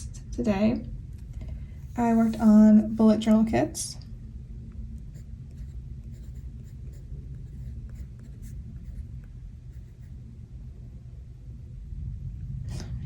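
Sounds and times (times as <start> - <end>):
fountain pen scratching paper: 5.1 - 9.1, 9.7 - 10.2
thunderstorm rumble: 10.6 - 13.0.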